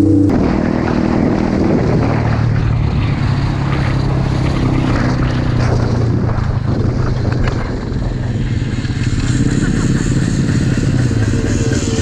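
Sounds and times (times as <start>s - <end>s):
small motorbike engine running: 0.0s - 12.0s.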